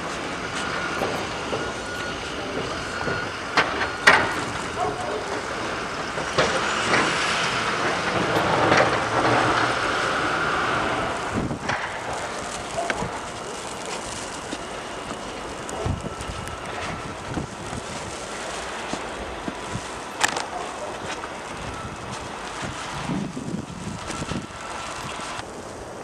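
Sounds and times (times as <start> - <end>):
heavy vehicle hissing: 0.0 - 15.6
sharp knocks and clanks: 2.5 - 4.6.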